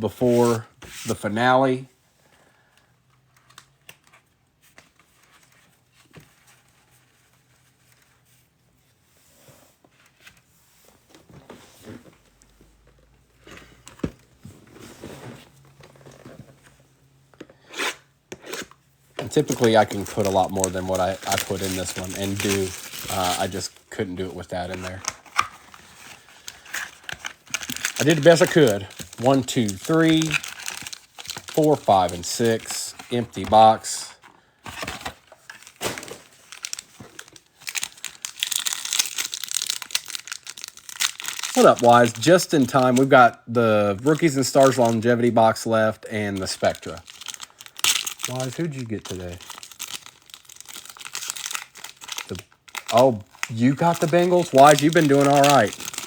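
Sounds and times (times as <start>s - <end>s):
plastic packaging crinkling: 19.2s - 34.0s, 34.7s - 43.2s, 43.9s - 56.0s
cardboard and plastic rustling: 19.2s - 43.3s, 43.9s - 56.0s.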